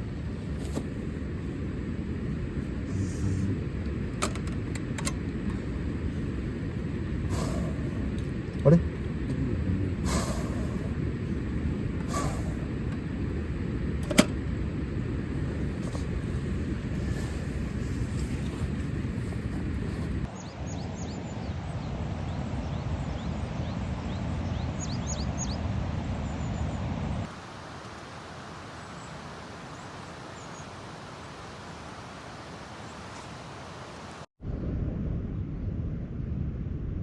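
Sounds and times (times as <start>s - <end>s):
low rumble: 0.0s - 4.2s, 4.8s - 20.3s, 34.4s - 37.0s.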